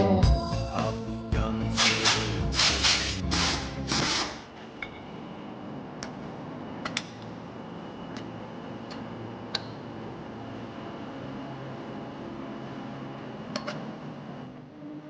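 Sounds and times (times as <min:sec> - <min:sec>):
background music: 0:00.0 - 0:04.3.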